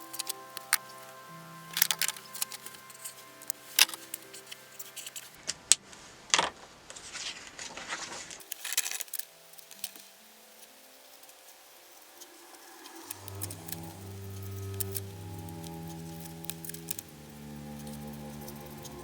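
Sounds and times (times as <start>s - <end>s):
faint background music: 0.0s - 19.0s
paper rustling: 6.4s - 10.1s.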